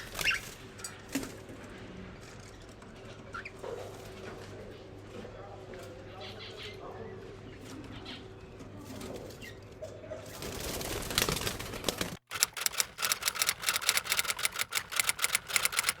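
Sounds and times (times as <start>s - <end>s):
rapid sharp tapping clicks: 12.3s - 16.0s.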